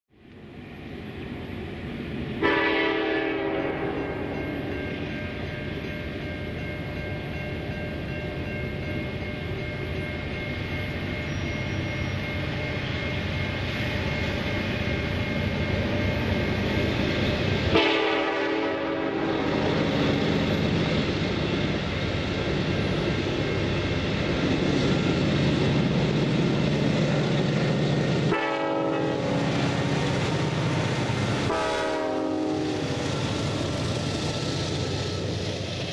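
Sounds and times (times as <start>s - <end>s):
diesel locomotive engine drone: 0.1s - 35.9s
locomotive air horn: 2.4s - 4.4s, 17.7s - 19.7s, 28.3s - 29.6s, 31.4s - 33.0s.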